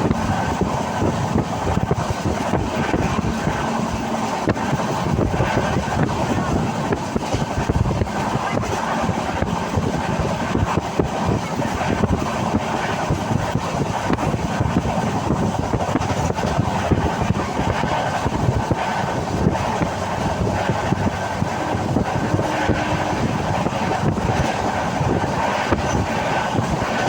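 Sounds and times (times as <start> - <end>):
train wheels rumbling on rails: 0.0 - 27.0
wind on microphone: 0.0 - 27.0.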